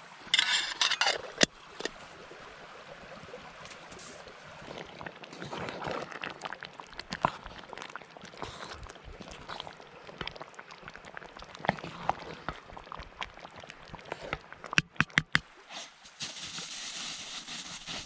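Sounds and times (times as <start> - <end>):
wood campfire crackling: 4.6 - 15.3.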